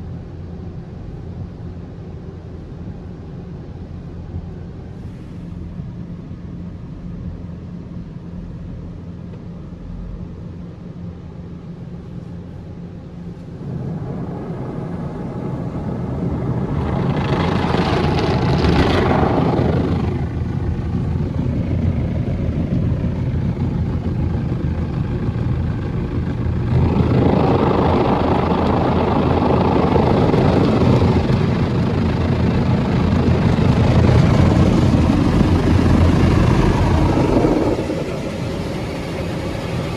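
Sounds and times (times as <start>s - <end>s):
car wash machine washing: 13.3s - 39.9s.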